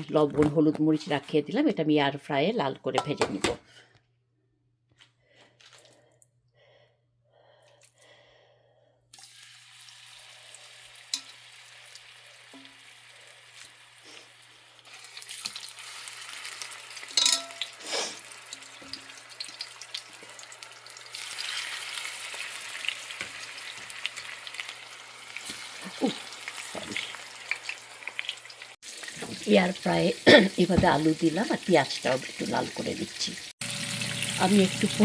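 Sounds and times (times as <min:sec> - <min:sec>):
fish frying in hot oil: 0:09.2 - 0:35.0.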